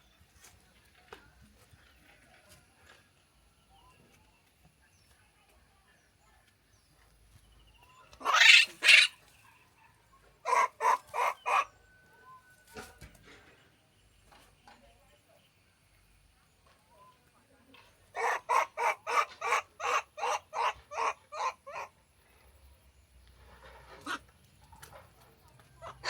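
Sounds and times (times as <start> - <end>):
harsh animal calls: 8.2 - 9.2.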